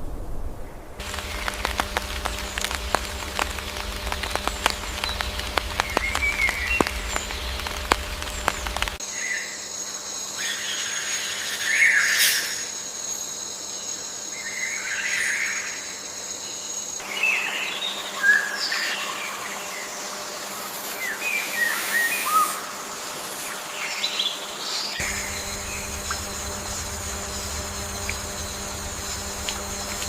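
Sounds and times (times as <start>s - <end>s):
low rumble: 0.0s - 9.0s, 25.0s - 30.0s
irregular crackling clicks: 1.0s - 9.0s, 25.0s - 30.0s
faint chirps: 1.0s - 17.8s, 25.0s - 30.0s
high insect trill: 1.0s - 23.7s, 25.0s - 30.0s.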